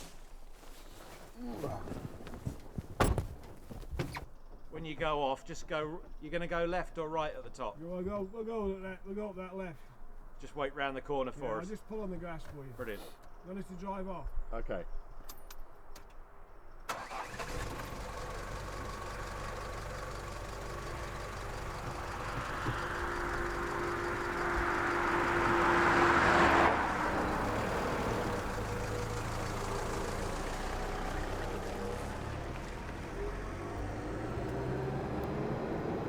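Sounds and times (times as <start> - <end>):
road and tyre noise: 0.0 - 4.7, 15.2 - 36.0
car engine driving off: 16.9 - 36.0.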